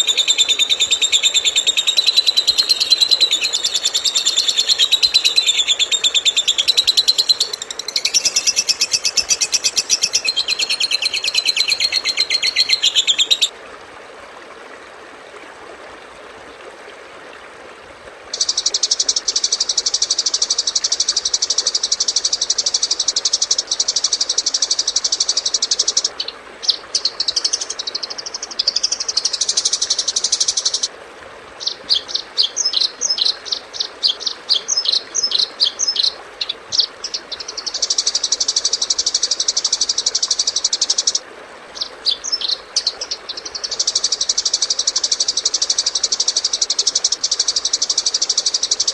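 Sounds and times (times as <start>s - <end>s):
bird chirping: 0.0s - 13.5s, 41.8s - 46.6s
rapid high bird trilling: 0.0s - 13.5s.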